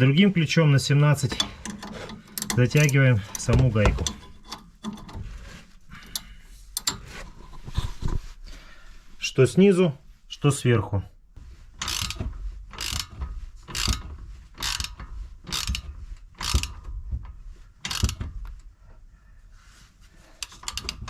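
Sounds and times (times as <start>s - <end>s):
wrench ratcheting clicks: 1.3s - 5.0s, 11.8s - 12.2s, 12.8s - 13.1s, 14.6s - 16.8s, 17.9s - 18.2s.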